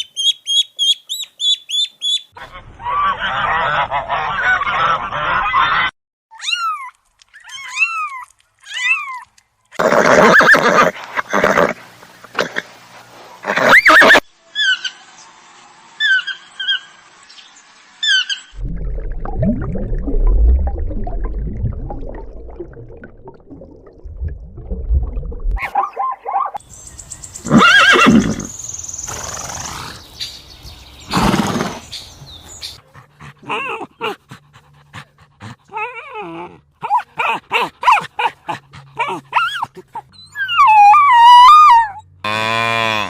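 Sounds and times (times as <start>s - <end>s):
rising and falling animal calls: 13.4s - 15.1s, 27.4s - 28.5s, 35.7s - 42.1s.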